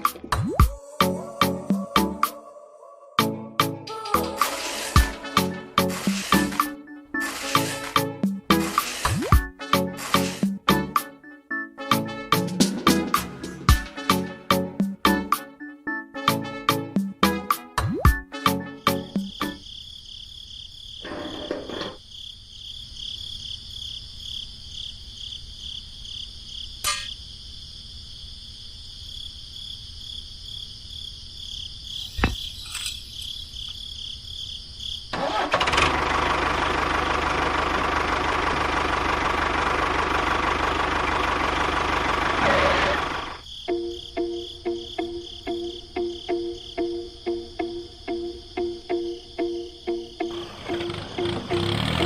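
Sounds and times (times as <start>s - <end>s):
pulsing chirp like crickets: 18.9s - 35.4s, 43.1s - 52.0s.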